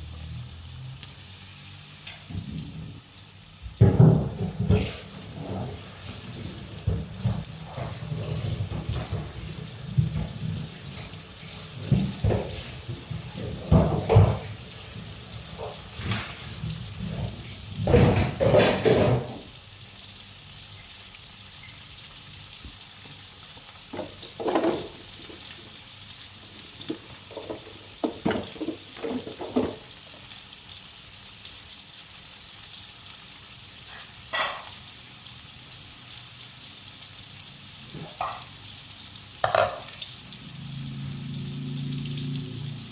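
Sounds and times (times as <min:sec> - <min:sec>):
food sizzling in hot oil: 0:00.0 - 0:42.9
utensil knocking against wok: 0:39.4 - 0:39.9.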